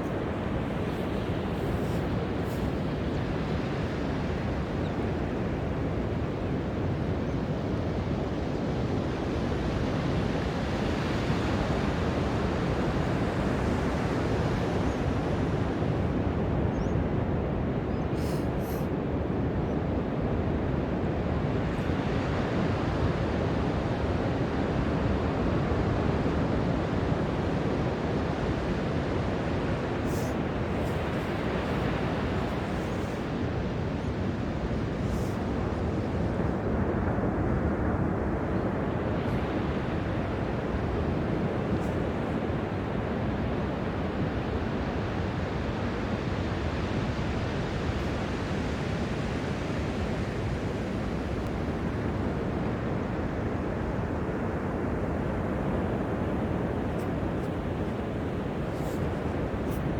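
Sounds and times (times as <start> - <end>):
ocean surf washing onto beach: 21.3 - 59.9.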